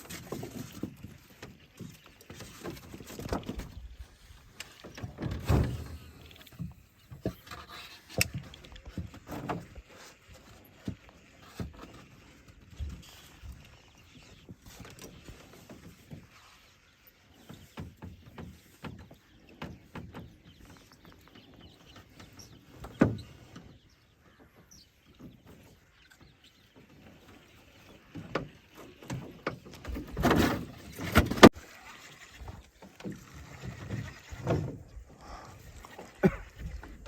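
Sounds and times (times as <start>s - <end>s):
boat knocks and creaks: 0.0s - 37.0s
water noise: 25.1s - 37.0s.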